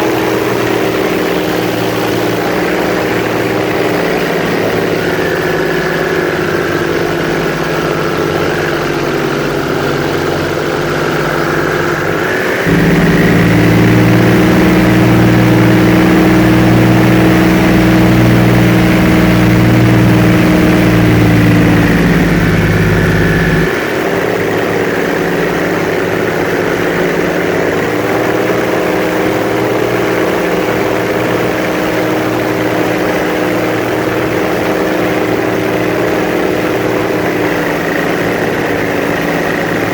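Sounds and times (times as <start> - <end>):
airboat engine and propeller: 0.0 - 39.9.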